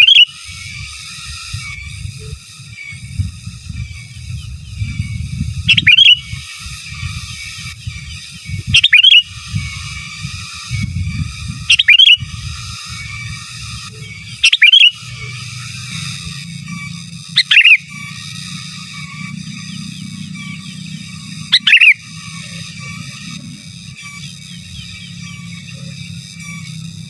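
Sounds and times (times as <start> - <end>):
bird whistled calls: 0.0 - 0.4, 5.6 - 6.4, 8.8 - 9.4, 11.7 - 12.3, 14.4 - 15.2, 17.4 - 17.9, 21.4 - 22.1
faint bird chattering: 0.0 - 0.5, 5.0 - 6.5, 7.2 - 9.5, 11.6 - 15.7, 17.4 - 18.0, 19.4 - 22.4.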